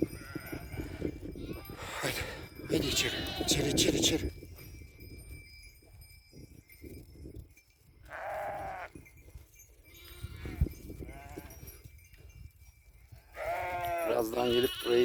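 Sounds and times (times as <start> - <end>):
sheep bleating: 2.8 - 3.8, 8.1 - 8.9, 13.4 - 15.0.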